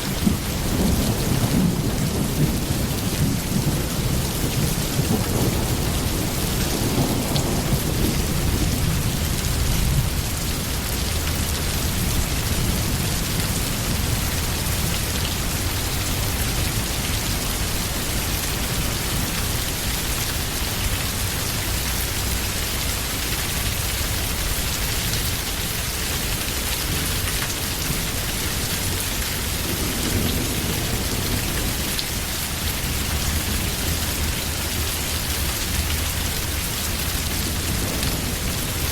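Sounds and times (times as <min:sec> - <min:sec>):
heavy rain: 0:00.0 - 0:38.9
low rolls of thunder: 0:00.1 - 0:19.6, 0:27.8 - 0:34.9, 0:37.2 - 0:38.9.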